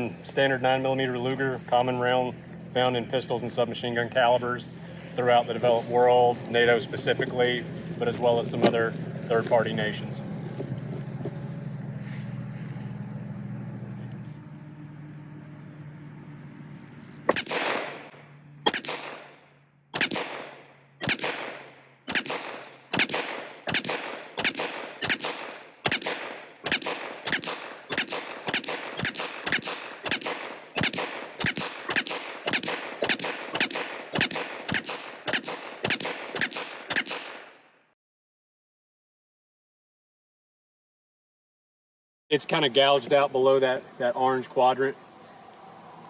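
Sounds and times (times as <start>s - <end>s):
pistol shots with echo: 17.3s - 37.6s.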